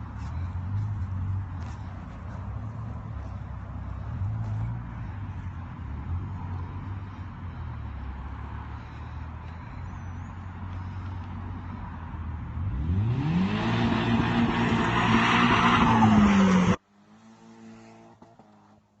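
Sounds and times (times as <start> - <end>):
car engine revving: 12.5 - 18.8.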